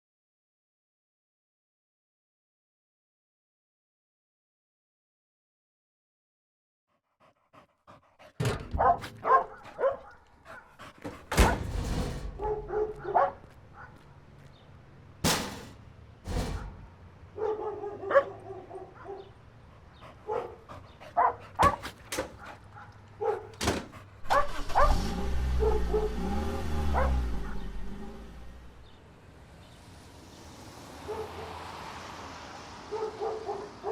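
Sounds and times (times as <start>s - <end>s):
dogs barking and yelping: 7.6s - 14.0s, 17.3s - 28.4s, 31.0s - 31.6s, 32.8s - 33.9s.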